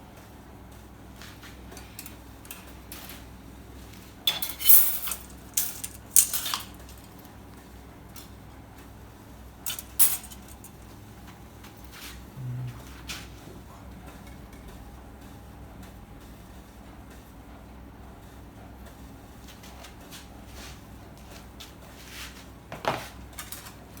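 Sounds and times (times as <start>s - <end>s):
sheet metal pieces clanking: 4.3s - 6.8s, 9.7s - 10.7s.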